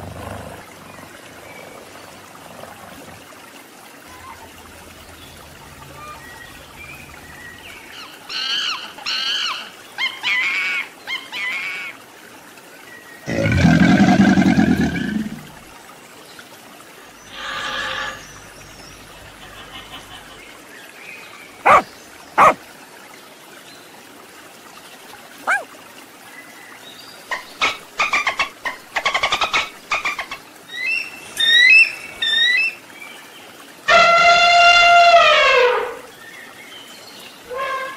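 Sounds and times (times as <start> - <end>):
eagle chirping calls: 21.6 - 21.8
dog barking: 21.6 - 22.6, 25.4 - 25.7.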